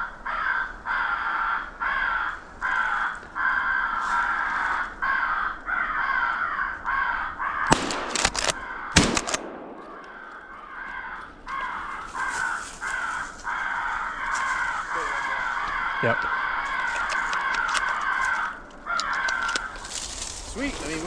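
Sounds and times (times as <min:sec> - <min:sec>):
crows cawing: 0:00.0 - 0:21.0
gunshots: 0:07.7 - 0:10.6.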